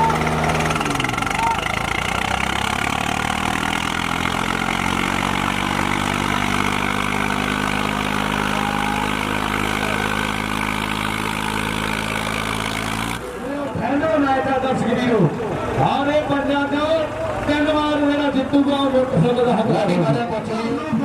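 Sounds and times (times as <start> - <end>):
diesel tractor engine running: 0.0 - 21.0.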